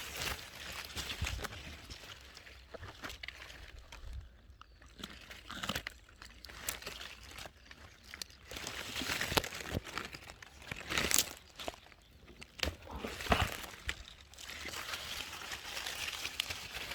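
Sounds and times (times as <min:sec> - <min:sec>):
rustling and crackling: 0:06.5 - 0:16.9.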